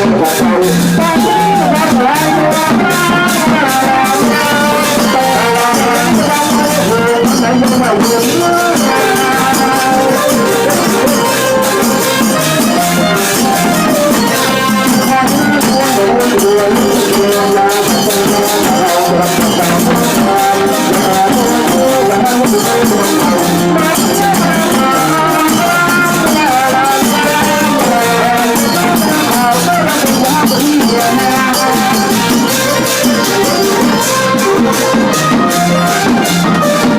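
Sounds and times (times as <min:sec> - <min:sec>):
brass band playing: 0:00.0 - 0:36.9
fast percussion hits: 0:00.0 - 0:36.9
brass horn melody: 0:08.6 - 0:16.2.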